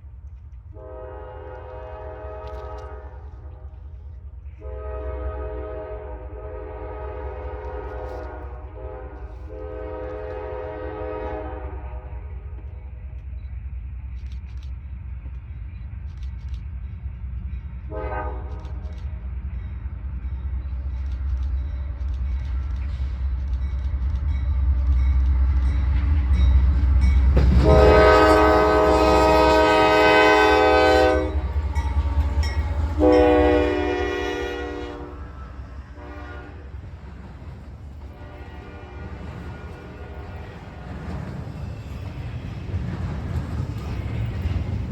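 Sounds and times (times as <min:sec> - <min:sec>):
train rumbling: 0:00.0 - 0:44.9
locomotive air horn blasts: 0:00.8 - 0:03.3, 0:04.6 - 0:12.2, 0:17.9 - 0:18.8, 0:27.6 - 0:36.8, 0:38.2 - 0:40.5.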